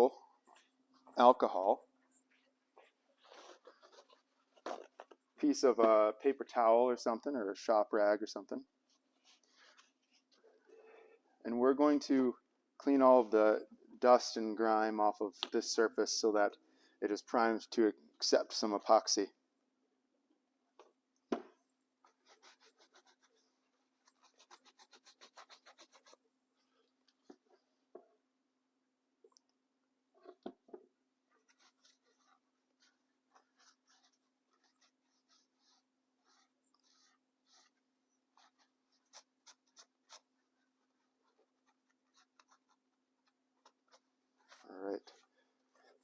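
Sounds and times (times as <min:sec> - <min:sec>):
paper towel rubbing rubber sole: 0:02.8 - 0:05.1, 0:22.0 - 0:26.3, 0:31.3 - 0:46.0.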